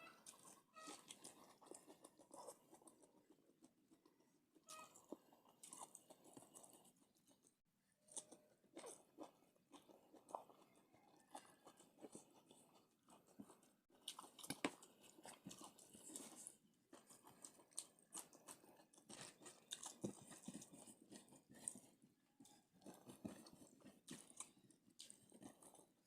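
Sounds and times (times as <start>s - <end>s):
person chewing crunchy food: 0.0s - 26.0s.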